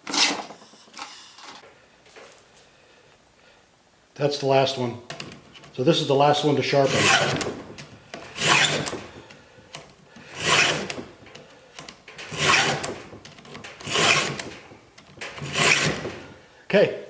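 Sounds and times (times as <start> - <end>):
hand file rasping on chain: 10.3 - 11.0, 12.3 - 12.9, 13.8 - 14.5, 15.4 - 16.1.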